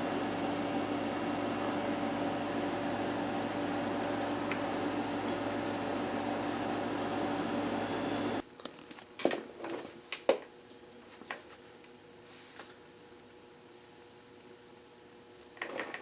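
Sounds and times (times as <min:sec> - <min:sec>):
gas burner hissing: 0:00.0 - 0:08.4.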